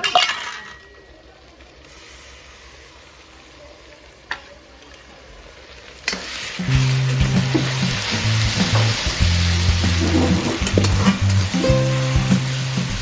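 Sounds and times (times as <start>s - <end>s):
steady hissing: 6.1s - 11.4s.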